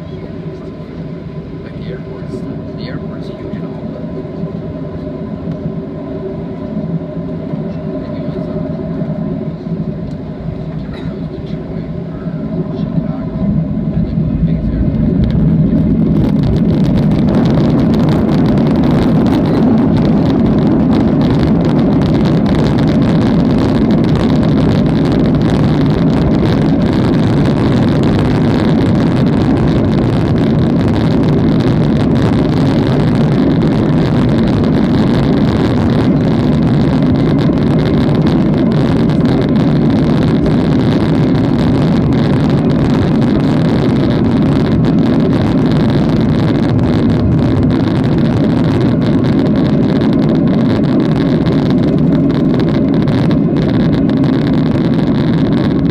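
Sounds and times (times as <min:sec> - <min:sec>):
airplane cabin engine rumble: 0:00.0 - 0:55.9.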